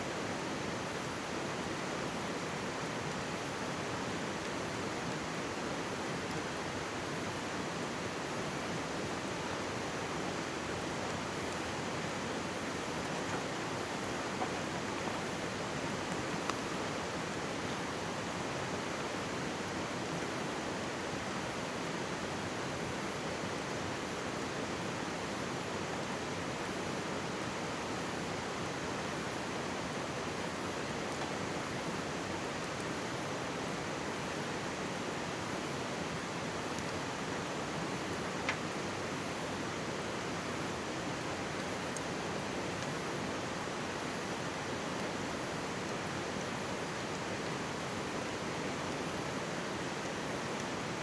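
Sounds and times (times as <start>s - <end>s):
stream rushing: 0.0s - 51.0s
campfire crackles: 2.8s - 20.4s.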